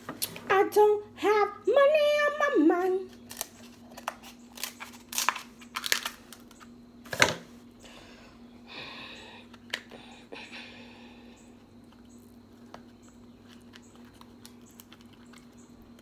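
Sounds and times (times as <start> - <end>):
crab shell cracking: 3.1 - 6.6
crinkling rustle: 3.1 - 7.6.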